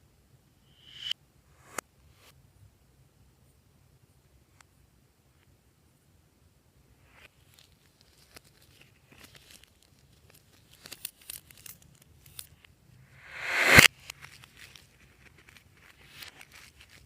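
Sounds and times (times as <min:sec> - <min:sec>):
sharp click: 0:13.3 - 0:13.9.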